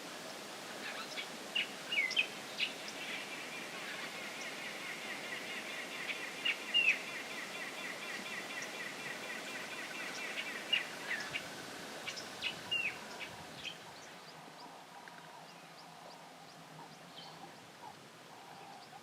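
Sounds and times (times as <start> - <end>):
high background bird chorus: 0.3 - 19.0
sharp down-sweeping bird calls: 0.8 - 14.4.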